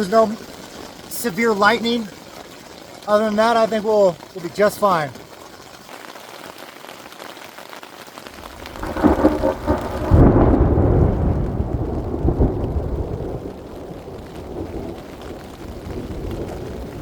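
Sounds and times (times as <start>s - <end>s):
steady rain: 0.0s - 17.0s
thunder rumbling: 8.3s - 17.0s.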